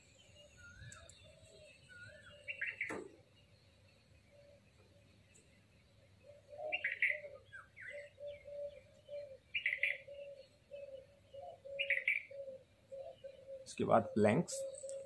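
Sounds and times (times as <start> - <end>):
birds chirping: 0.0 - 15.0
birds cooing: 0.2 - 3.2, 6.0 - 15.0.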